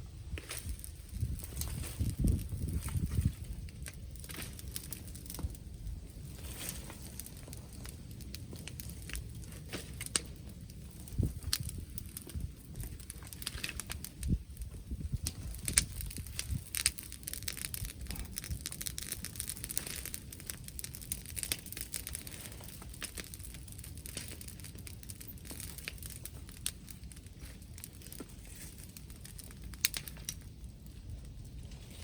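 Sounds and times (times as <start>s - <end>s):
bonfire crackling and popping: 0.0s - 32.0s.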